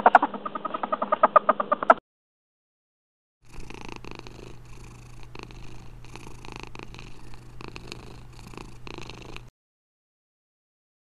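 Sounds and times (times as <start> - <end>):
cat purring: 3.4 - 9.5.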